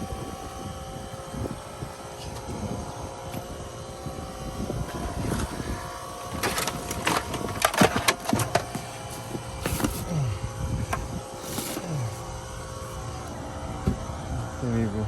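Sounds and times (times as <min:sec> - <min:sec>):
steady machine hum: 0:00.0 - 0:15.0
items clattering and rustling: 0:04.9 - 0:12.2.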